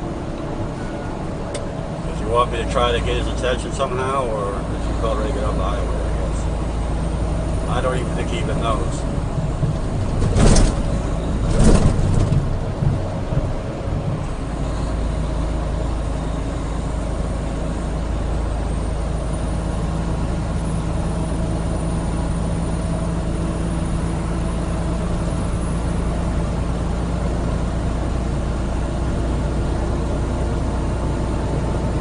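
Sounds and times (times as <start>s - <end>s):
car road and engine noise: 0.0s - 32.0s.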